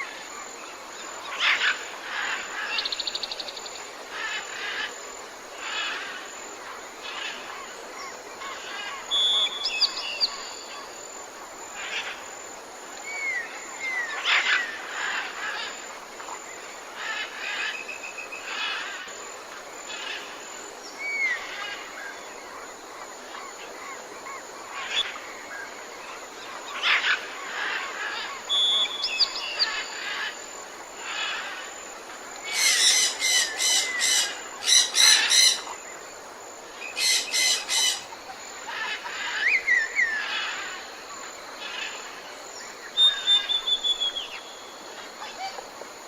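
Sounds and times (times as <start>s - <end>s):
steady background hiss: 0.0s - 46.0s
birds chirping and calling: 32.4s - 35.9s, 36.8s - 40.8s.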